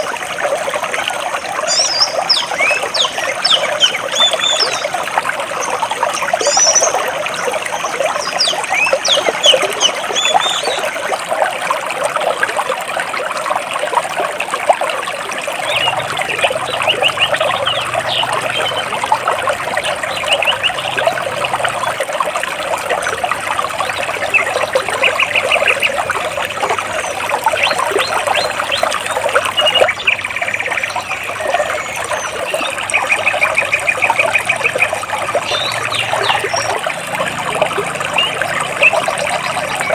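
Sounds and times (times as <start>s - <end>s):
stream trickling over rocks: 0.0s - 39.9s
small birds chirping: 1.6s - 5.0s, 5.6s - 10.9s, 15.6s - 22.0s, 26.8s - 36.8s.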